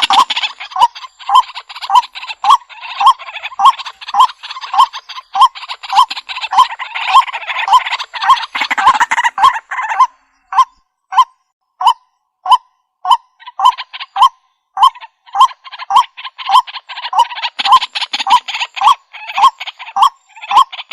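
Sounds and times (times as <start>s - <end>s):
dense raspy chattering: 0.0s - 10.1s, 14.8s - 20.9s
waterhen calling: 0.0s - 11.2s, 11.8s - 20.9s.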